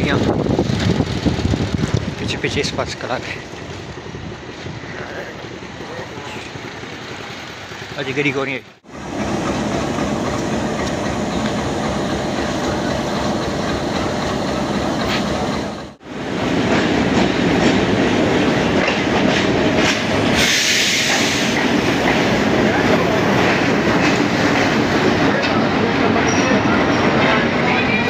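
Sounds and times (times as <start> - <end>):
train wheels clattering over rails: 0.0 - 4.7, 5.3 - 28.0
short hiss: 20.4 - 21.6.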